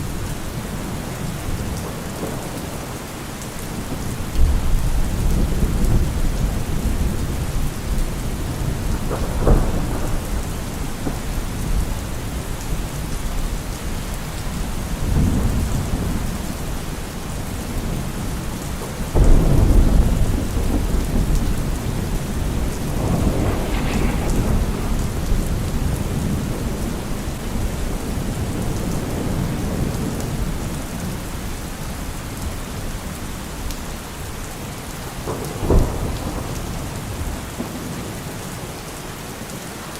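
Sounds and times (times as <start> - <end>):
thunder rumbling: 0.0 - 33.2, 35.1 - 38.6
heavy rain: 0.0 - 39.9
loud thunder crack: 19.1 - 30.5.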